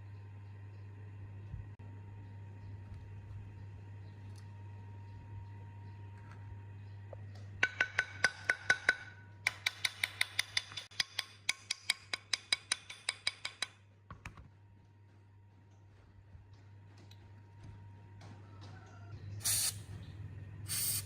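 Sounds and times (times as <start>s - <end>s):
hammer tapping on metal: 7.6s - 13.8s.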